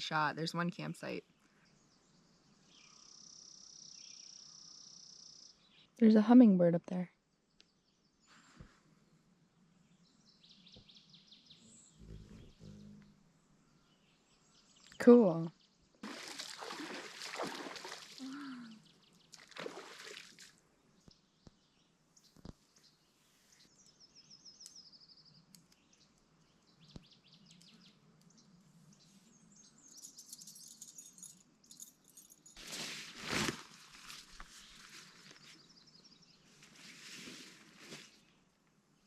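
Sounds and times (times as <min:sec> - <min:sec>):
bird calls: 0:10.6 - 0:13.2.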